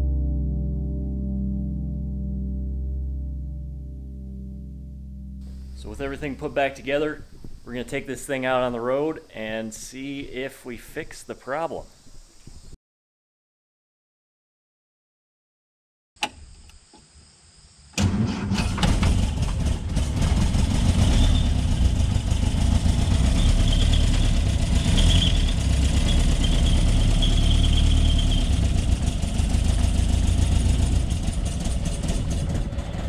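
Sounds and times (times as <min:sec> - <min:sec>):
car engine starting and running: 0:18.0 - 0:33.0.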